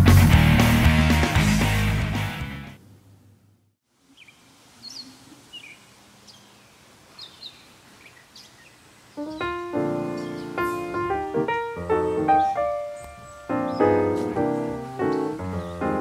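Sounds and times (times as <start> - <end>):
rock music: 0.0 - 2.8
faint outdoor background noise: 2.6 - 16.0.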